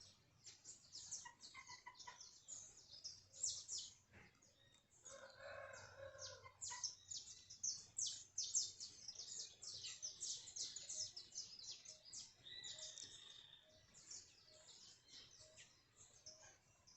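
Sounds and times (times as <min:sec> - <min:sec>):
small birds chirping: 0:00.0 - 0:16.9
rooster crowing: 0:05.0 - 0:06.5.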